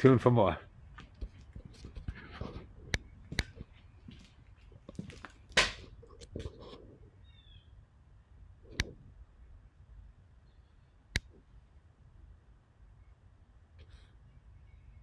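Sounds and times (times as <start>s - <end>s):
sharp clicks and taps: 2.9s - 3.7s, 11.2s - 11.4s.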